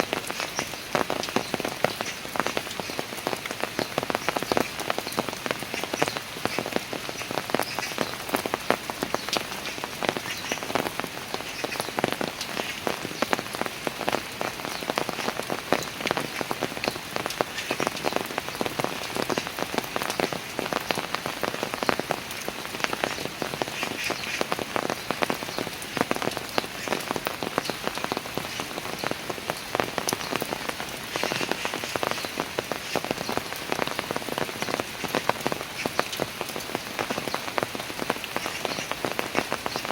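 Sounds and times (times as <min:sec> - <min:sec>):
rain on stone stairs: 0:00.0 - 0:39.9.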